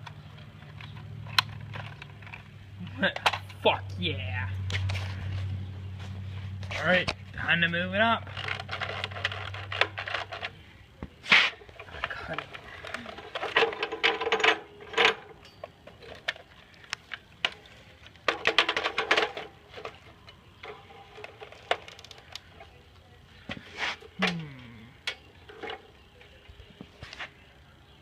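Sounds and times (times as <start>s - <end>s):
plastic parts clattering: 8.2s - 10.6s, 11.6s - 22.8s.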